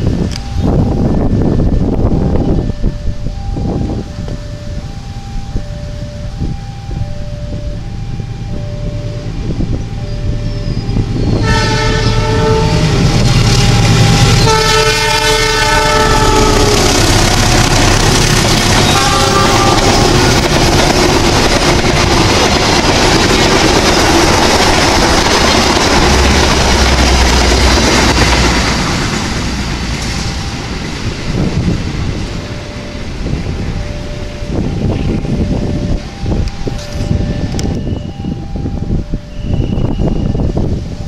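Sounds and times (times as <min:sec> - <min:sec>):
train coaches rumbling and clattering: 0:00.0 - 0:41.0
train horn blasts: 0:10.1 - 0:20.5.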